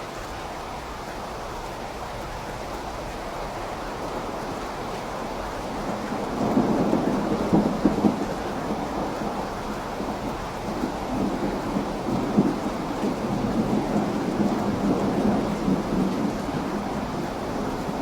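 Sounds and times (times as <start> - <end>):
steady rain: 0.0 - 18.0
distant rolling thunder: 4.1 - 18.0.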